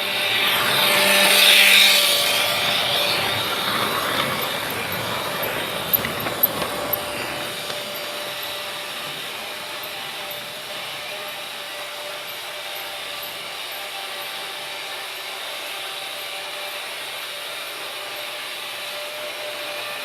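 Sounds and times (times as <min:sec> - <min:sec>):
train wheels rushing on rails: 0:00.0 - 0:20.0.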